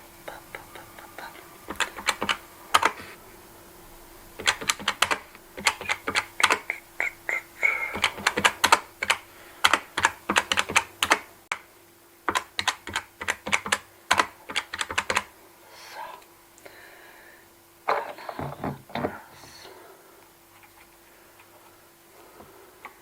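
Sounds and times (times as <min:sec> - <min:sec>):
cash register keys clicking: 0:07.9 - 0:11.2.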